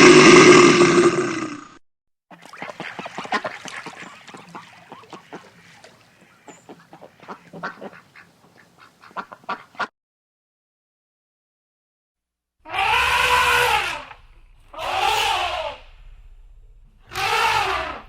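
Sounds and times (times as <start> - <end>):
waterfowl calling: 2.3 - 9.9, 12.7 - 16.2, 17.1 - 18.0.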